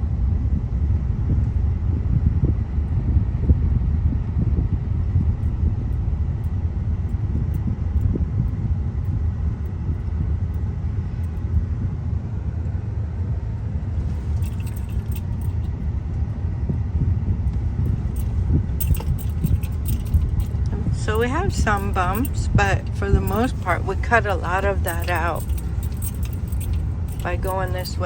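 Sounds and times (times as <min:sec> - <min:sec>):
car road noise rumble: 0:13.8 - 0:16.3, 0:17.1 - 0:28.0
light rattling and jangling: 0:14.0 - 0:16.0, 0:17.5 - 0:28.0.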